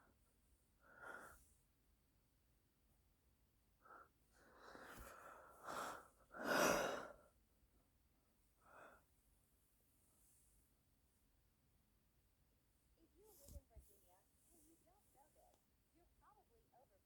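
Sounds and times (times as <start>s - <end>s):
person breathing close to microphone: 4.4s - 7.2s.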